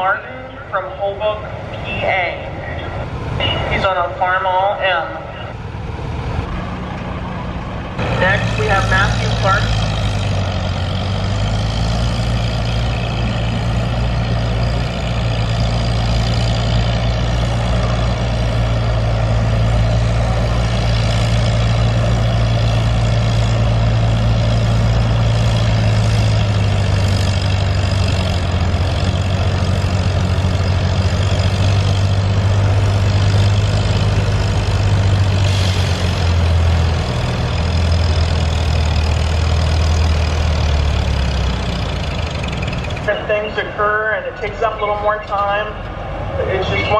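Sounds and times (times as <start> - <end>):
tractor engine under load: 0.0 - 46.9.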